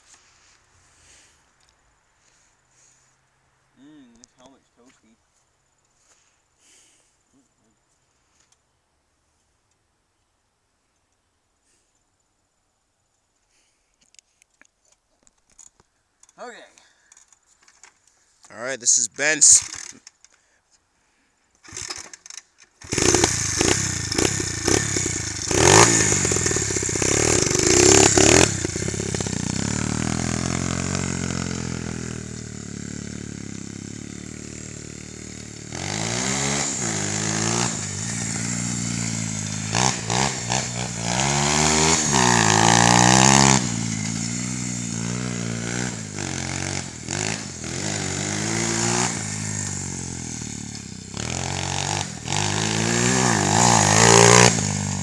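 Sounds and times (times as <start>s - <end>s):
motorbike engine revving: 21.6s - 22.2s, 22.8s - 55.0s.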